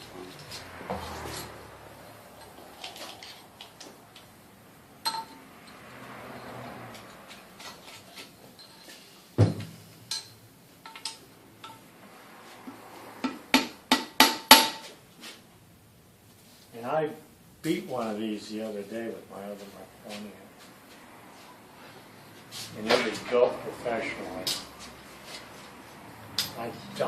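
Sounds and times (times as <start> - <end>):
light metallic taps and clinks: 5.0 - 9.0, 10.1 - 11.8, 26.3 - 26.7.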